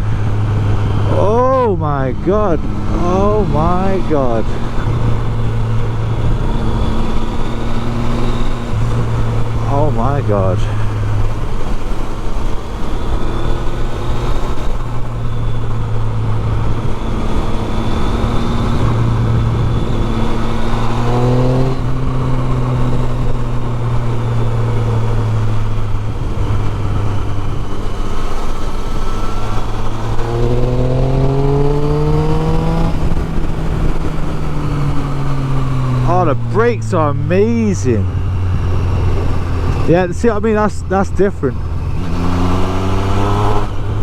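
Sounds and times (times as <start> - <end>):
motorcycle engine accelerating: 0.0 - 44.0.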